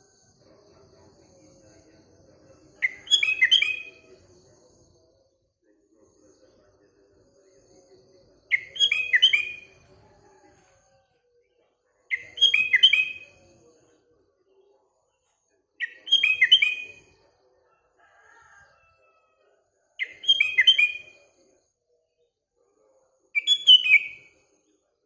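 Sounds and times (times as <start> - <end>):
bulbul whistling song: 2.8 - 4.2, 8.5 - 10.0, 12.1 - 13.6, 15.8 - 17.2, 20.0 - 21.3, 23.4 - 24.4
faint lower bird call: 8.5 - 10.4.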